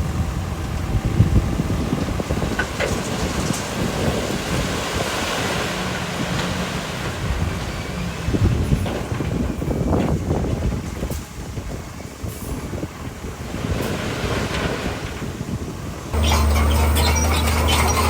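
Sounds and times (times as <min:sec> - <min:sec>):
diesel engine rumble: 0:00.0 - 0:18.0
stone sliding and spilling: 0:16.2 - 0:18.0.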